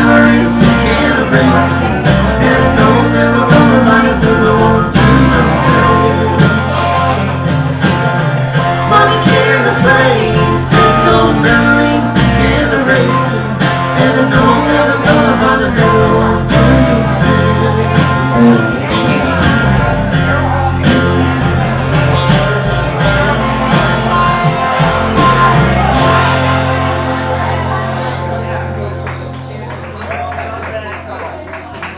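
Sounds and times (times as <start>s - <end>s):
live band playing blues-country: 0.0s - 31.9s.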